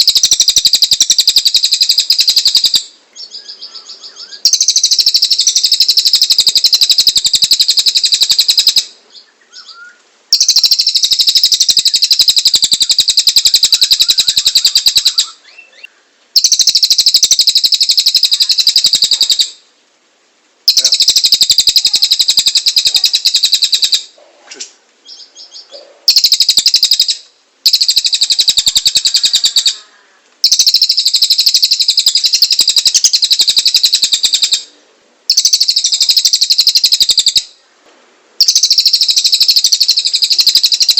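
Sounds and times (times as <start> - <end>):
soft bird chirps: 0.0 - 19.6, 25.0 - 34.7.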